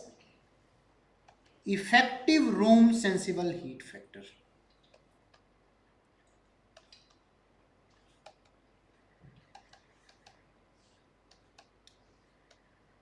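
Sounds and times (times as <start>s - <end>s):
faint clicks and taps: 4.6s - 5.5s, 6.2s - 7.3s, 7.9s - 8.6s, 9.2s - 12.7s.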